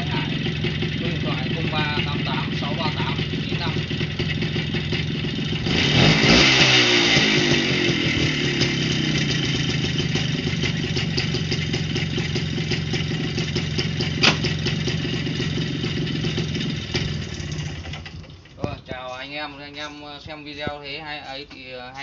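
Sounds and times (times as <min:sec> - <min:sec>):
motorcycle engine idling and revving: 0:00.0 - 0:20.9
sharp knock: 0:14.2 - 0:14.5.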